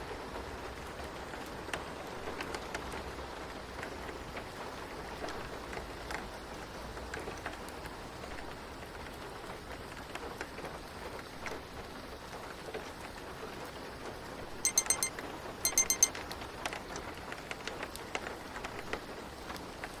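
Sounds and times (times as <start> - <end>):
steady rain: 0.0 - 14.6, 16.8 - 20.0
timer alarm beeping: 14.7 - 15.1, 15.7 - 16.1.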